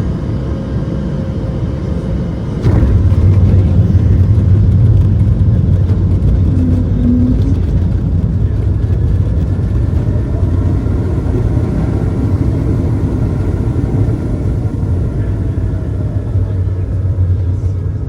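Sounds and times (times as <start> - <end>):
faint high engine tones: 0.0 - 18.0
jet engine cabin rumble: 0.0 - 18.0.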